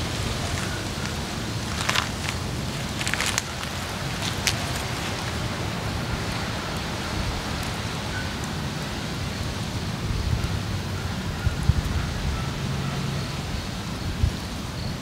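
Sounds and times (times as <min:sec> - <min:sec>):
wood fire crackling: 0:00.0 - 0:11.6
wind buffeting microphone: 0:00.0 - 0:15.0.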